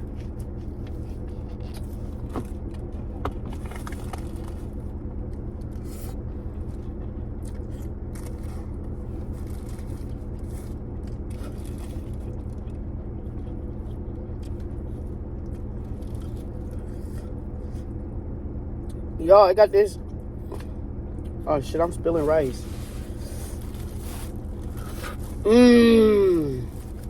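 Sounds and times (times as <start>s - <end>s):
chewing: 0.0s - 17.9s, 22.6s - 25.5s
steady low hum: 0.0s - 27.0s.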